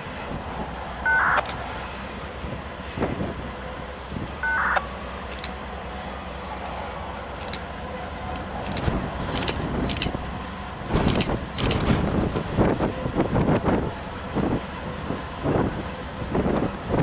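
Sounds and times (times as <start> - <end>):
locomotive engine low rumble: 0.0 - 17.0
short high-pitched blips: 1.1 - 1.5, 4.4 - 4.9.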